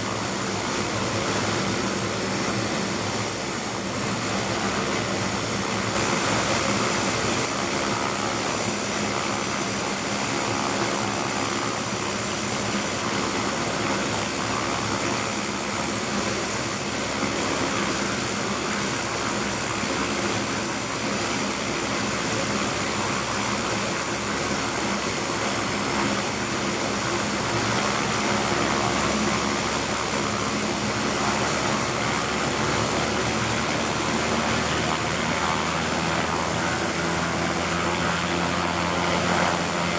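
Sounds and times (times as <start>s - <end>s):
helicopter engine drone: 0.0s - 39.9s.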